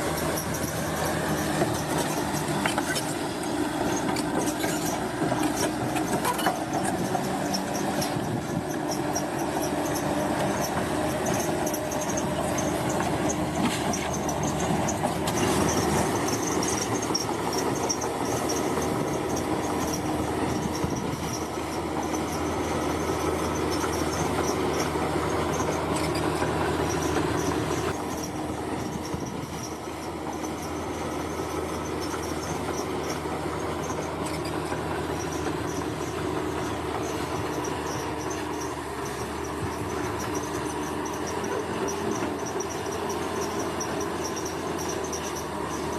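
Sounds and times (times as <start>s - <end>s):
bulldozer diesel engine: 0.0s - 45.9s
crawler tracks clanking and squealing: 0.0s - 45.9s.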